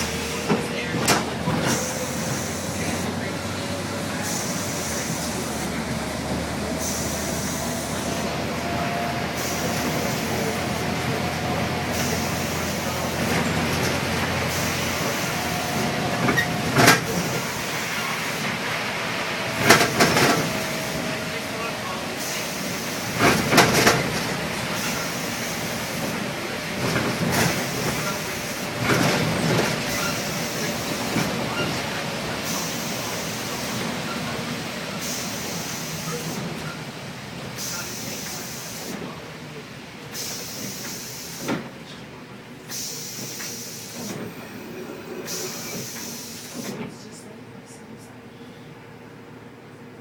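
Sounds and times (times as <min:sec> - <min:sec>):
bus engine and road rumble: 0:00.0 - 0:50.0
rain hiss: 0:32.4 - 0:36.5, 0:40.1 - 0:41.5.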